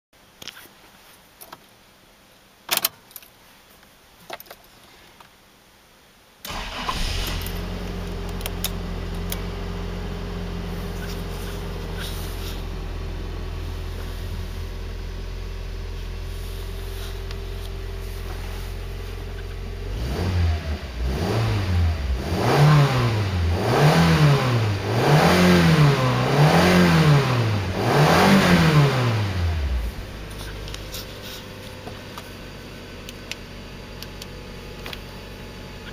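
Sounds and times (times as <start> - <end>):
engine revving: 19.8 - 30.8.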